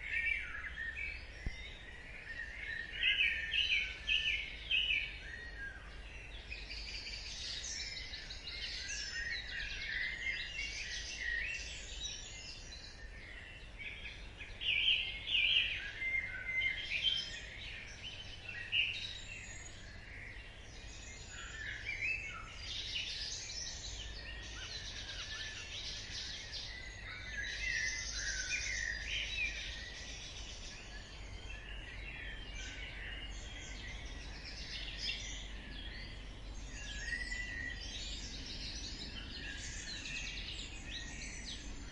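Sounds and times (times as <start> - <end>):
songbirds chirping and trilling: 0.0 - 41.9.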